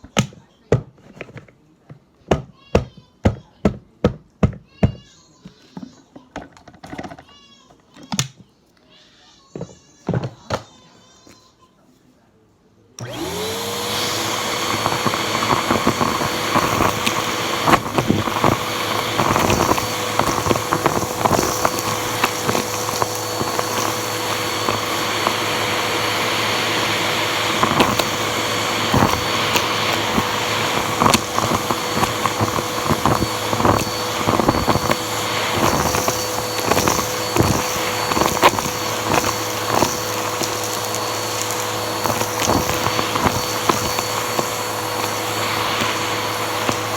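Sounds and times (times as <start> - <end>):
vacuum cleaner motor whining: 13.0 - 46.9
debris clicking in hose: 28.8 - 46.9.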